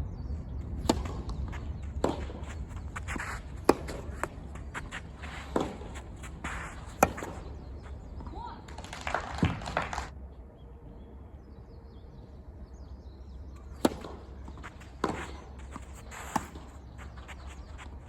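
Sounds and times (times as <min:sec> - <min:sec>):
tennis ball struck and bouncing: 0:00.6 - 0:10.0, 0:13.7 - 0:17.7.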